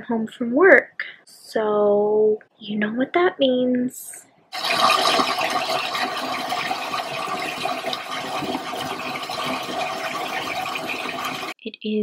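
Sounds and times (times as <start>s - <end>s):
water pouring into a bathtub: 4.6s - 11.6s.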